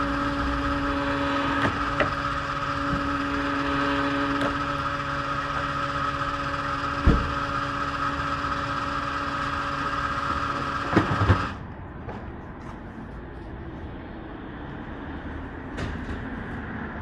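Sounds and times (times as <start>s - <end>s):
motorcycle engine whining: 0.0s - 11.6s.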